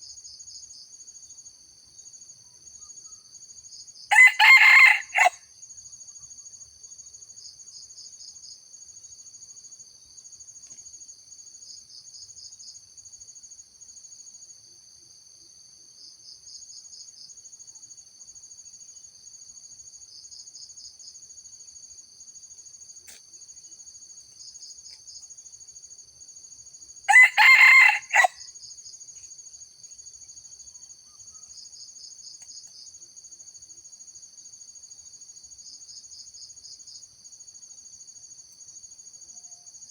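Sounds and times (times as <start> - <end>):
rooster crowing: 4.1 - 5.4, 27.1 - 28.5
insect chirring: 20.2 - 39.9.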